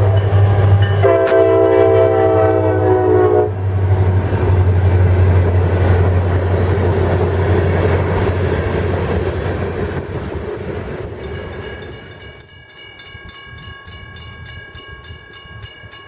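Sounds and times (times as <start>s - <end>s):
locomotive chord horn: 0.0s - 3.8s
diesel locomotive drone: 0.0s - 12.7s
train wheels rumbling on rails: 0.0s - 16.0s.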